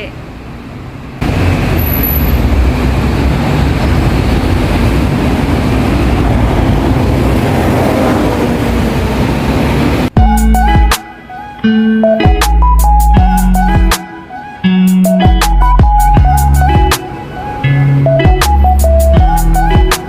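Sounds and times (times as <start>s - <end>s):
tram rumbling on rails: 0.0s - 10.2s.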